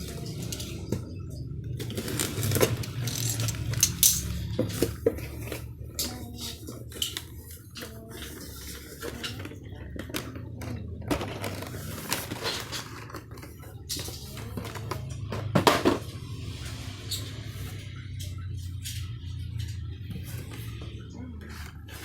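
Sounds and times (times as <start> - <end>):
steady low hum: 0.0 - 22.0
plastic packs clattering: 1.8 - 16.2.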